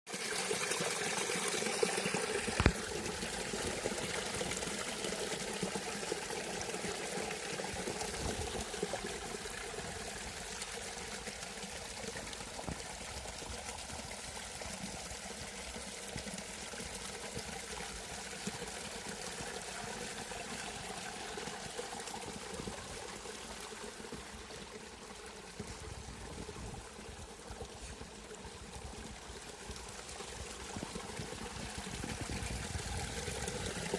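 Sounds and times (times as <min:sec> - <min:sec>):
stream flowing over rocks: 0:00.1 - 0:33.9.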